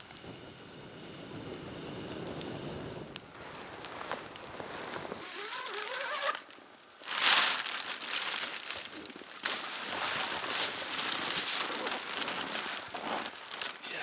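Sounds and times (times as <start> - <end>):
material crinkling and rustling: 3.3 - 14.0.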